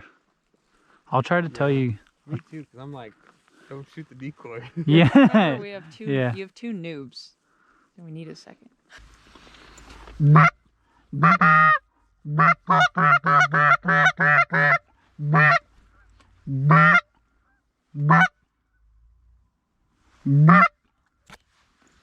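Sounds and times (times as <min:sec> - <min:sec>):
geese honking: 0:10.2 - 0:10.6, 0:11.2 - 0:17.1, 0:18.0 - 0:18.3, 0:20.3 - 0:20.7.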